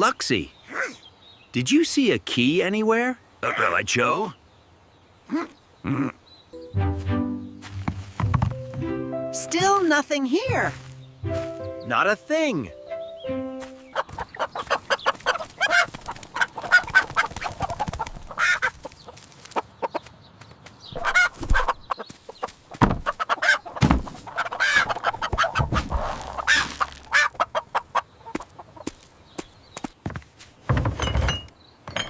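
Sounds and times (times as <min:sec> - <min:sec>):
chickens clucking: 0:13.6 - 0:20.2, 0:20.9 - 0:29.1.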